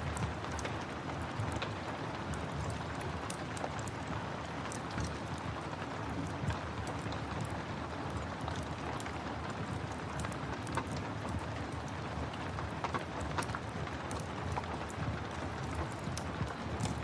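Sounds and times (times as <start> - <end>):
fire crackling and popping: 0.0 - 17.0
steady rain: 0.0 - 17.0.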